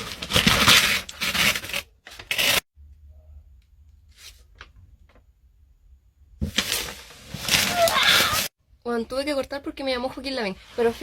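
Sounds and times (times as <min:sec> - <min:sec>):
packaging rustling and tearing: 0:00.0 - 0:02.6, 0:06.5 - 0:08.5.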